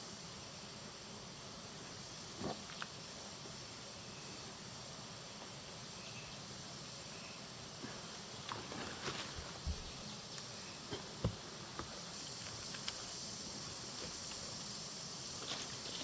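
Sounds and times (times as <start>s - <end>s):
insects chirring: 5.5s - 16.0s.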